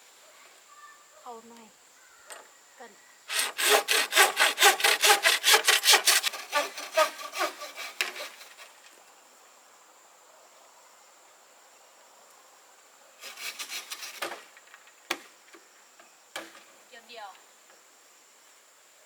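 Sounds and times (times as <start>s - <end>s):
hand saw cutting wood: 3.3s - 8.8s, 13.2s - 14.4s.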